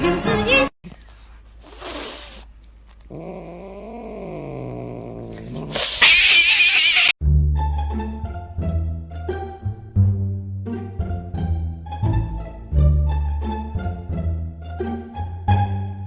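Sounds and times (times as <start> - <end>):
cat yowling: 5.7 - 7.2.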